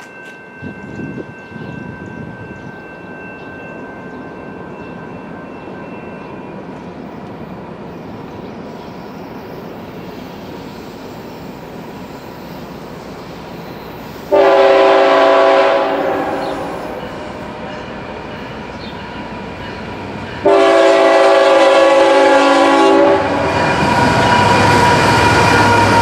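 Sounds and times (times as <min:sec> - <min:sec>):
freight train rumbling on rails: 0:00.0 - 0:26.0
locomotive air horn blast: 0:14.3 - 0:17.0, 0:20.4 - 0:23.6.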